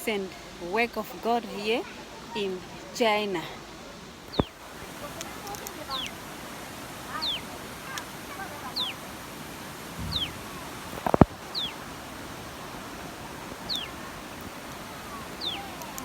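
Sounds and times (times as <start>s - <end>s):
rushing water hiss: 0.0s - 16.0s
bird whistle call falling in pitch: 10.0s - 10.4s.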